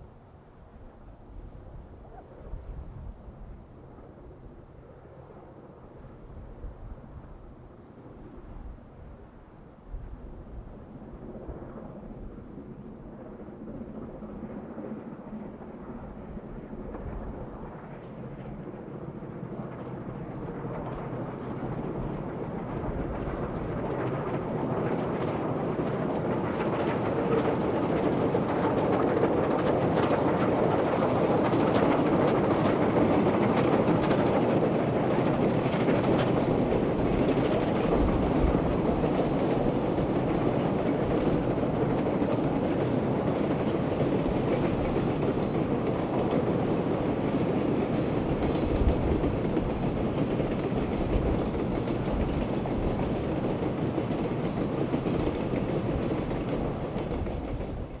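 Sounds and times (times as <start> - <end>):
steam train rolling past: 15.4 - 58.0
wheels clicking over rails: 20.6 - 58.0.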